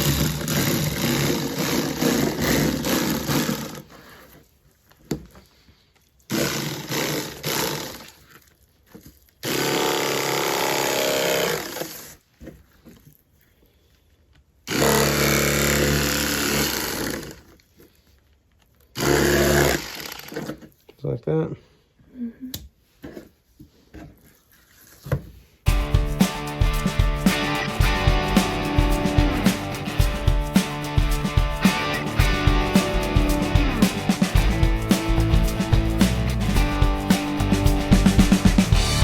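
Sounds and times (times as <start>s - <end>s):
electric knife buzzing: 0.0s - 3.8s.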